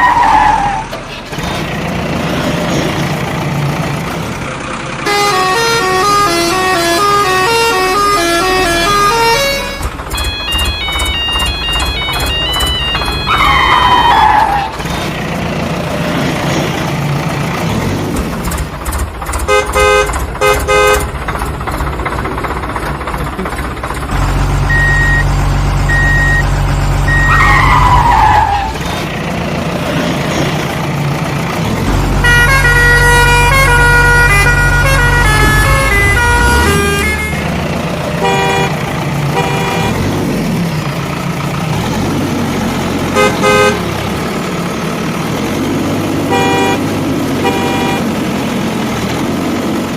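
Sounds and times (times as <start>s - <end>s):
horn-like tones playing a tune: 5.1s - 14.4s, 32.2s - 37.5s, 46.3s - 46.8s, 47.4s - 48.1s.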